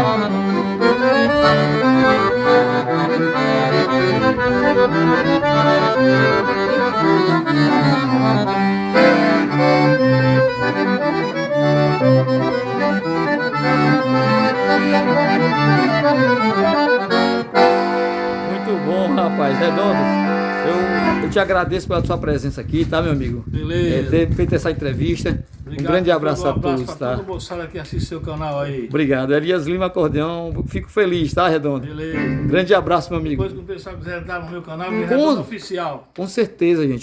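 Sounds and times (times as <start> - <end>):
accordion playing a melody: 0.0 - 21.6, 32.1 - 32.7, 34.9 - 35.4.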